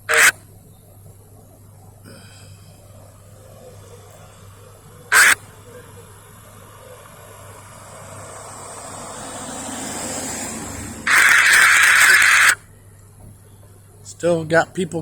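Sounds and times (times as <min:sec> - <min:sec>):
vehicle passing: 0:05.1 - 0:12.6.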